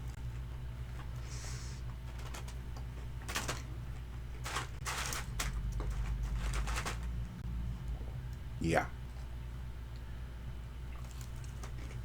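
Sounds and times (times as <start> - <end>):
crunchy chewing of fried chicken: 10.8 - 12.0.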